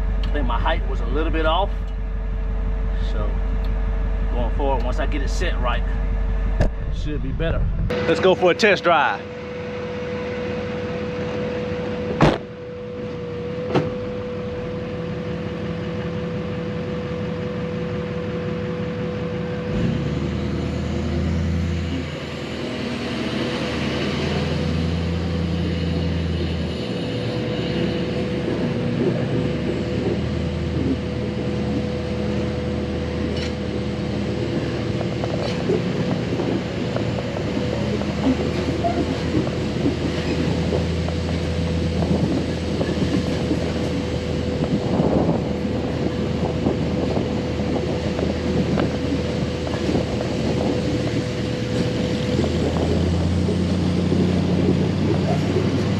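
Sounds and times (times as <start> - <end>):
pickup truck engine running: 0.0 - 55.9.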